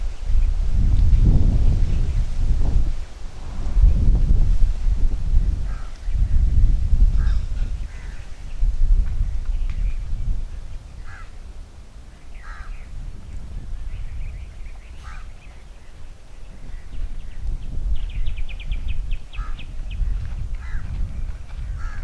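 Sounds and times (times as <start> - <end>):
steady low rumble: 0.0 - 7.9
crows cawing: 5.7 - 6.0, 7.2 - 8.3, 11.0 - 11.4, 12.4 - 12.8, 15.0 - 15.4, 20.6 - 20.9, 21.8 - 22.0.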